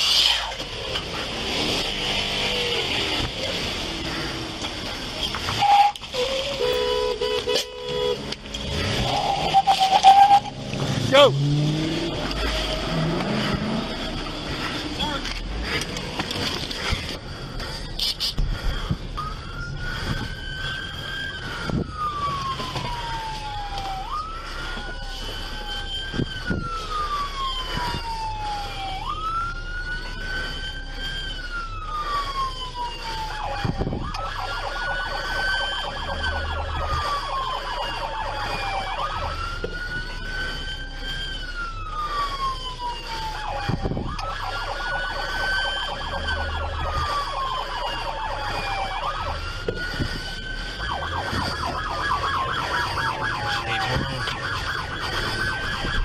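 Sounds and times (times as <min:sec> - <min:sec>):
police siren wailing: 0:00.0 - 0:56.0.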